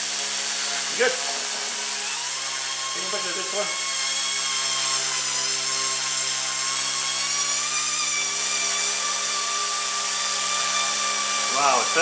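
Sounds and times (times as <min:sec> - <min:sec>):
rc helicopter motor whine: 0:00.0 - 0:12.0.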